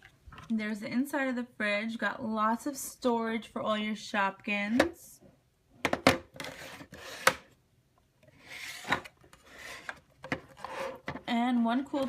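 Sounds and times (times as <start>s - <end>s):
plastic scraping and rubbing: 6.3s - 7.5s, 8.3s - 12.0s.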